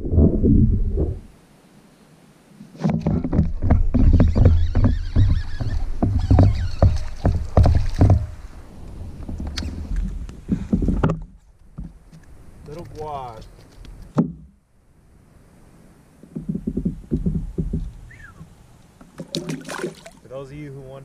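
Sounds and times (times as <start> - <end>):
knocks on plastic kayak: 6.0 - 8.4.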